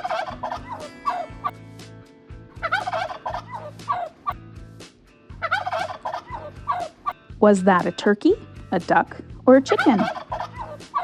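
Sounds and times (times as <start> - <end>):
turkey gobbling: 0.0 - 1.6, 2.5 - 4.4, 5.3 - 7.2, 9.7 - 11.0.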